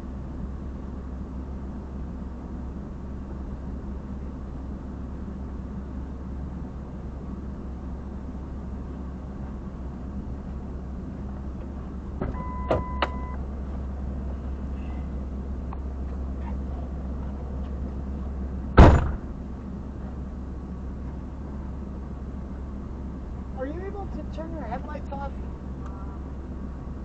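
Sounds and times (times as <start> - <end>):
idling vehicle hum: 0.0 - 27.0
car door shutting: 11.6 - 13.4, 18.7 - 19.4
short electronic beep: 12.4 - 13.4.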